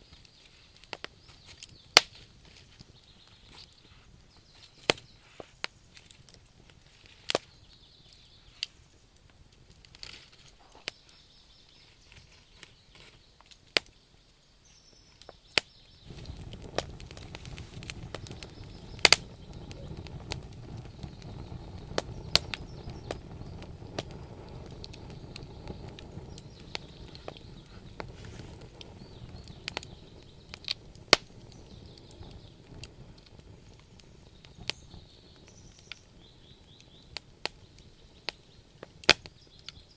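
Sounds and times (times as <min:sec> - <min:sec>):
campfire logs crackling: 0:00.0 - 0:39.9
low steady rumble: 0:16.1 - 0:34.2.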